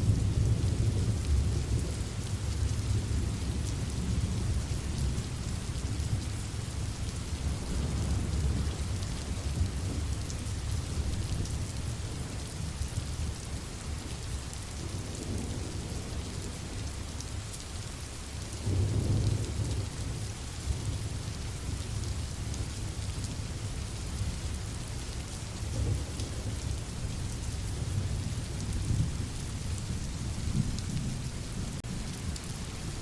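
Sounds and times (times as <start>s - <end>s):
low rolling thunder: 0.0s - 6.4s, 7.4s - 11.8s, 18.6s - 21.8s
steady rain falling: 0.0s - 33.0s.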